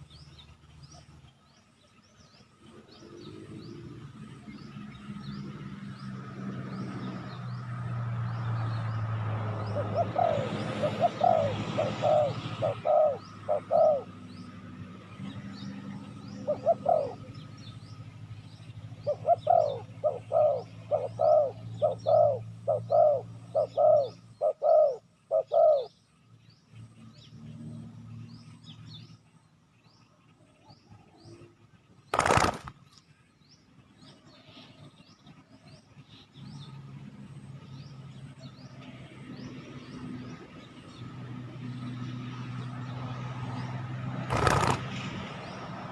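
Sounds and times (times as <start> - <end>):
dove cooing: 9.7 - 14.2, 16.4 - 17.3, 19.0 - 25.9, 44.3 - 44.9.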